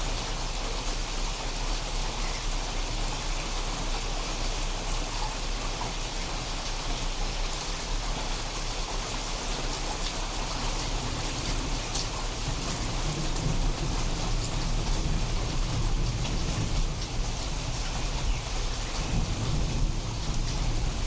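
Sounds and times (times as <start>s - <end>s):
heavy rain pattering: 0.0s - 21.0s
rumble of thunder: 10.4s - 21.0s.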